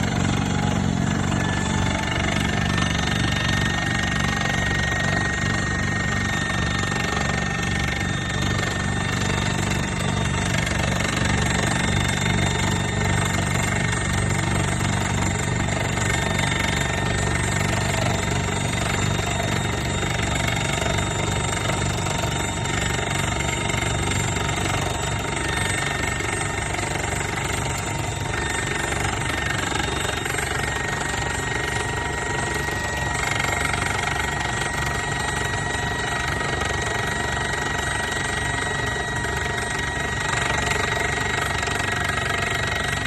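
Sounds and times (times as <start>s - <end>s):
diesel engine running: 0.0s - 43.0s
hydraulic rock drill hammering: 0.0s - 43.0s.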